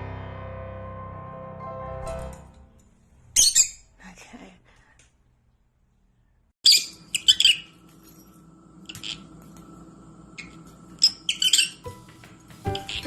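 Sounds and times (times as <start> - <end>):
small bird chirping: 6.6 - 7.8, 10.4 - 11.9, 12.7 - 13.0.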